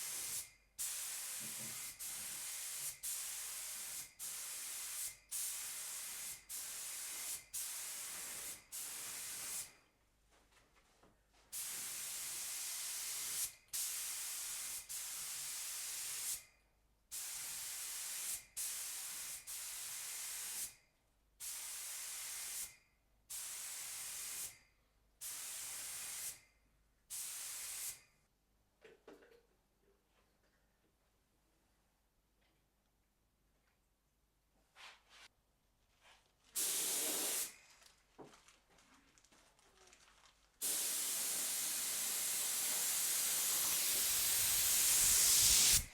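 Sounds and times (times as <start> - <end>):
paint spray gun hissing: 0.0 - 9.7, 11.6 - 16.4, 17.2 - 20.7, 21.4 - 22.7, 25.2 - 26.4, 27.1 - 28.0, 36.6 - 37.5, 40.6 - 45.9.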